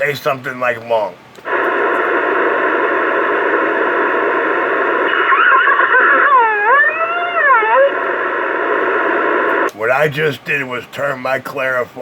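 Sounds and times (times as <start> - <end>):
radio hiss: 0.0 - 12.0
wavering radio tone: 1.5 - 9.7.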